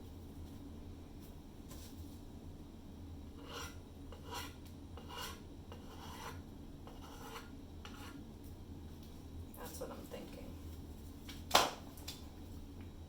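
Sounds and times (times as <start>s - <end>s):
scraping strokes: 3.4s - 8.2s.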